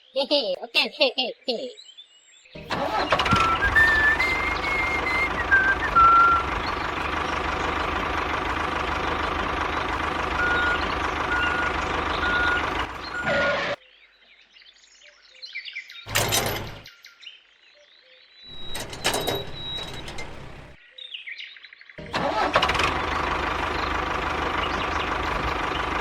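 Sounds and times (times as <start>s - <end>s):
vehicle motor running: 2.6s - 13.7s, 16.1s - 16.8s, 18.5s - 20.8s, 22.0s - 26.0s
reversing beeper beeps: 10.4s - 13.4s.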